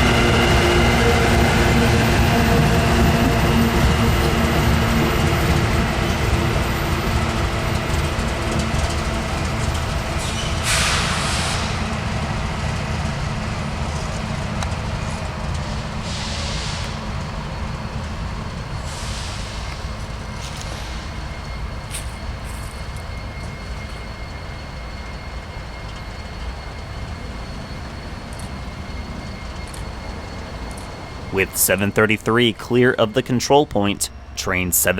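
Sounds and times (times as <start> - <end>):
train cars rolling past: 0.0 - 34.4.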